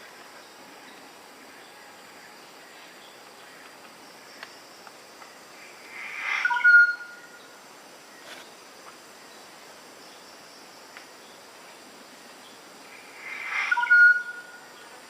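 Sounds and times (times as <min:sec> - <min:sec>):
faint insect-like buzz: 0:00.0 - 0:15.0
bird call: 0:06.0 - 0:07.3, 0:13.3 - 0:14.6.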